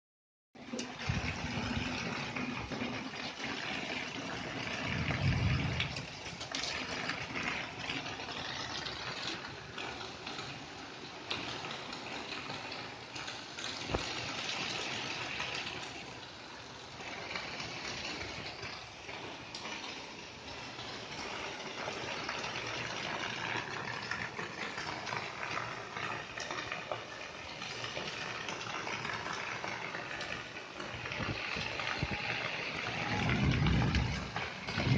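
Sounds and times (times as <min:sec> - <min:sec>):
rain falling steadily: 0:00.6 - 0:34.9
low rumble: 0:04.9 - 0:06.1, 0:33.1 - 0:34.9.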